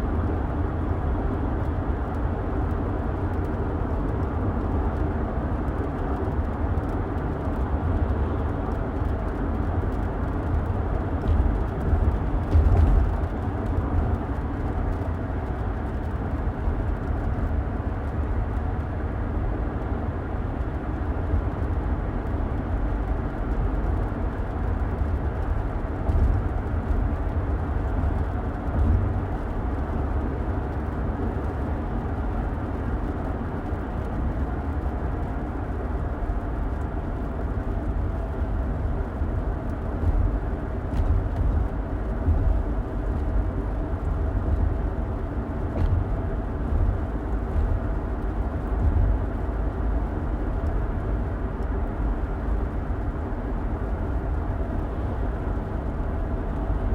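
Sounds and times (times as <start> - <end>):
car road noise rumble: 0.0 - 56.9.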